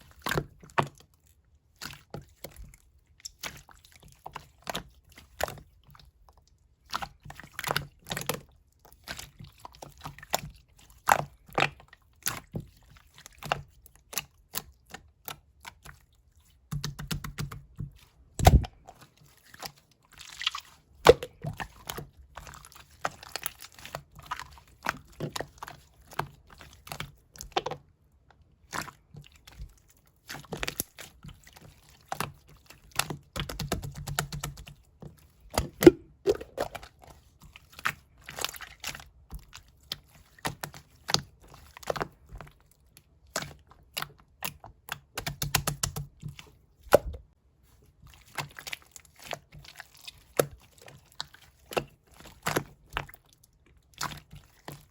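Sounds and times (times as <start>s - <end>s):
slime squishing with clicks and pops: 16.6s - 19.0s, 19.6s - 34.8s, 35.5s - 37.0s, 37.7s - 47.3s.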